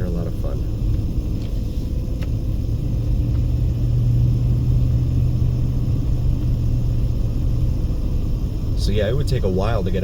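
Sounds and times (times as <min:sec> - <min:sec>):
car engine and tyre drone: 0:00.0 - 0:10.0.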